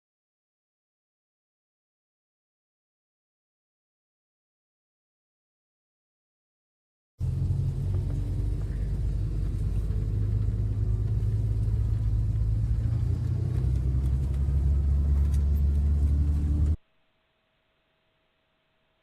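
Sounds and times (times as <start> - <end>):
vehicle engine and road rumble: 7.2 - 16.8
faint hum: 7.2 - 19.0.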